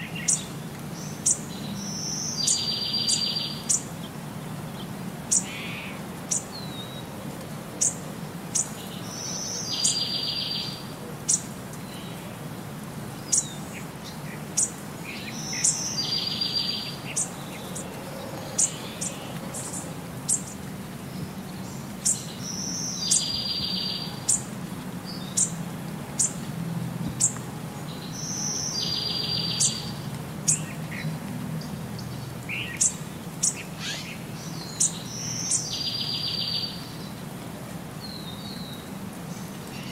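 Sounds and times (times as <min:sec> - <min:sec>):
bird high chirps: 0:32.7 - 0:34.2.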